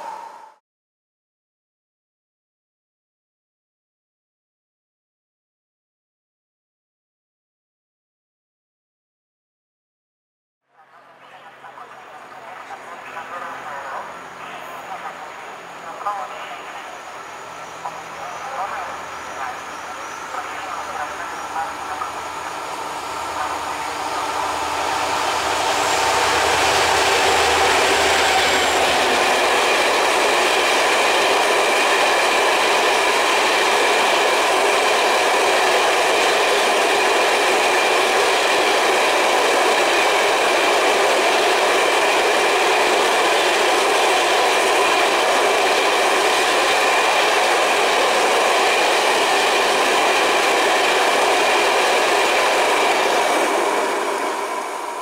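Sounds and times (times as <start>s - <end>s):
locomotive engine hum: 11.0s - 55.0s.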